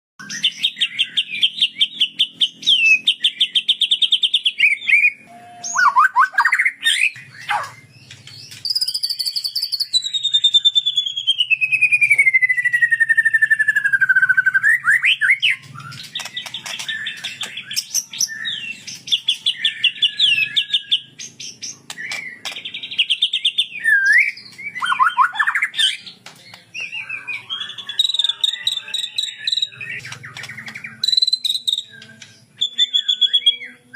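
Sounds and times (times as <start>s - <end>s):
bird singing trills: 0.2s - 33.9s.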